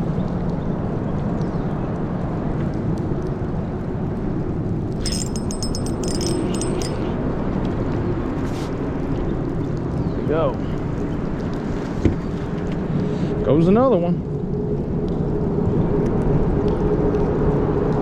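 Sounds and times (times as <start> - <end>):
metallic clicking and jingling: 5.0 - 7.2.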